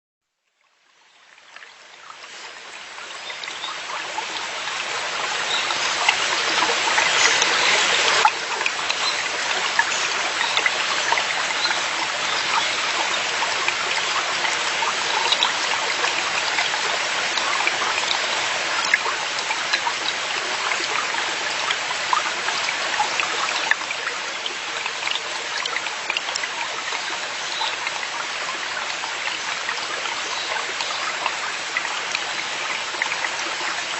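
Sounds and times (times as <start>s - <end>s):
mountain stream babbling: 0.5s - 33.9s.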